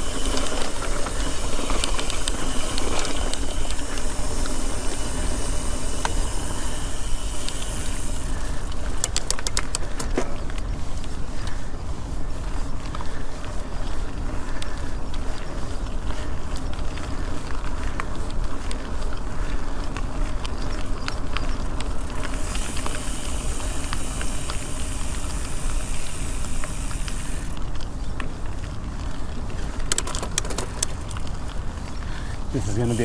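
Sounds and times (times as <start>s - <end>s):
high hiss: 0.0s - 8.9s, 22.0s - 27.6s, 32.6s - 33.0s
bicycle rumble: 0.0s - 33.0s
sharp clicks: 0.1s - 10.6s, 29.8s - 31.1s.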